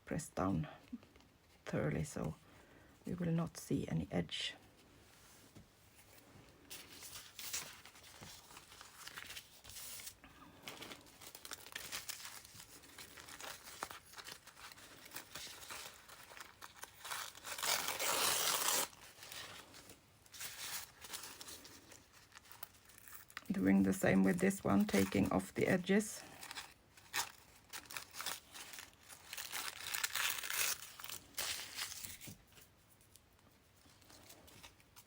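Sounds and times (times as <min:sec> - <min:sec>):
paper tearing and crinkling: 0:06.7 - 0:32.7.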